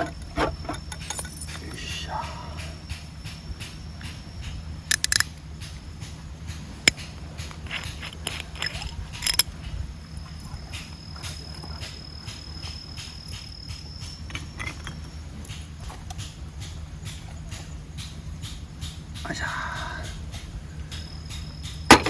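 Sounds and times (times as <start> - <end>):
insects chirping: 0.0 - 22.0
low steady rumble: 0.0 - 22.0
sharp clicks or knocks: 2.6 - 9.8.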